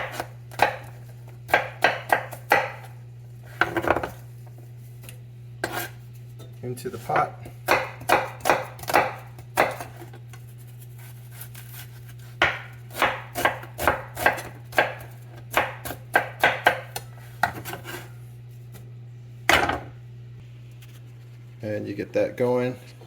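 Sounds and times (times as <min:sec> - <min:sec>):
knife chopping on cutting board: 0:00.0 - 0:04.2, 0:05.6 - 0:06.0, 0:07.0 - 0:10.1, 0:11.3 - 0:18.1
steady low hum: 0:00.0 - 0:23.0.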